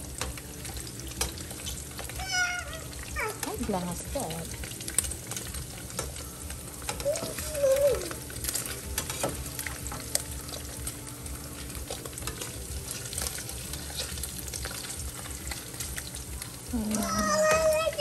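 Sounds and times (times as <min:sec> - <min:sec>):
meat sizzling in a frying pan: 0:00.0 - 0:18.0
metal spatula scraping a pan: 0:08.4 - 0:10.8, 0:11.6 - 0:15.9.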